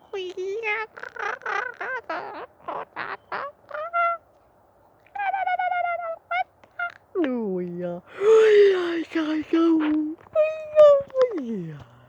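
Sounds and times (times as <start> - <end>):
woman's wordless vocalisations: 0.0 - 2.1, 5.1 - 12.0.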